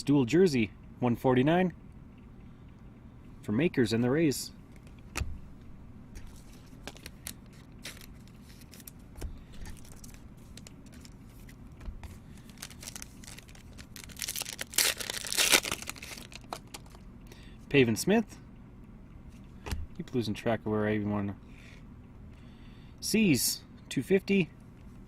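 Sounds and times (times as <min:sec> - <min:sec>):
cards clicking: 0:06.2 - 0:17.0
wrapper crinkling: 0:06.2 - 0:17.0
wrapper tearing: 0:06.3 - 0:09.0, 0:09.6 - 0:11.5, 0:12.4 - 0:17.0.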